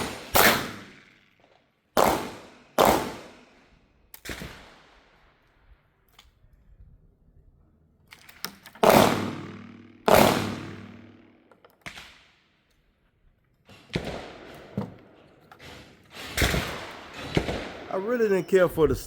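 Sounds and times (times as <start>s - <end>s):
shotgun shots: 0.0s - 1.1s, 2.0s - 3.4s, 8.8s - 11.3s
gun handling clicks: 8.0s - 10.6s.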